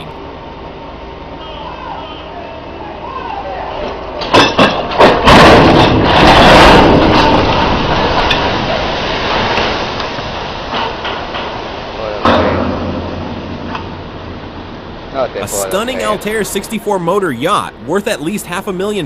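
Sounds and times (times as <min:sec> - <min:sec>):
long loud crash: 0:12.2 - 0:14.7.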